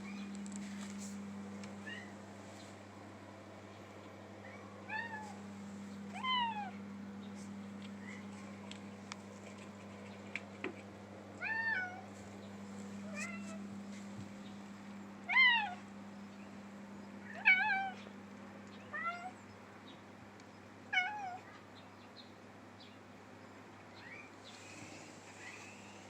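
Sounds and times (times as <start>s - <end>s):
steady low hum: 0.0s - 26.0s
cat meowing: 6.1s - 6.8s.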